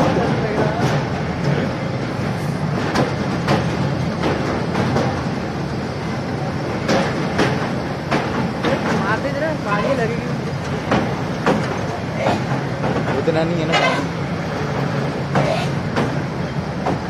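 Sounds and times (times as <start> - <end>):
train wheels rumbling on rail: 0.0 - 17.0
rushing air: 0.9 - 13.2
wheels clacking over rail joints: 2.7 - 17.0.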